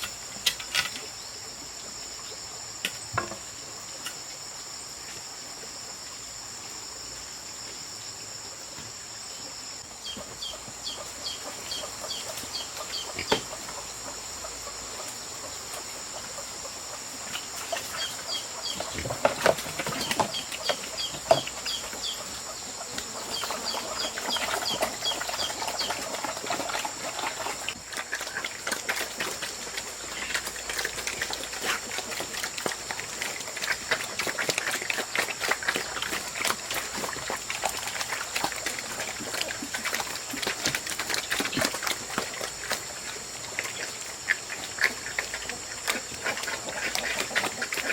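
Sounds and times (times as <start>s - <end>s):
crickets droning: 0.0s - 47.9s
chickens clucking: 10.0s - 38.7s.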